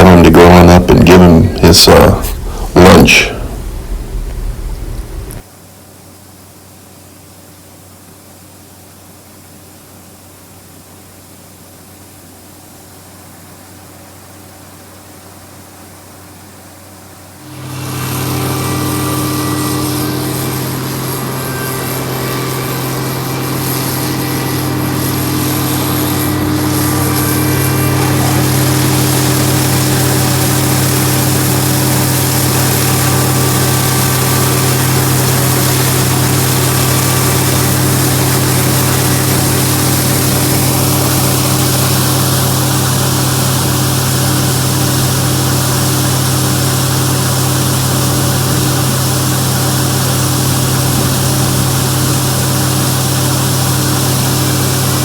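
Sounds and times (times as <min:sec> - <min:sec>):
combine harvester diesel droning: 0:00.0 - 0:05.4, 0:17.4 - 0:55.0.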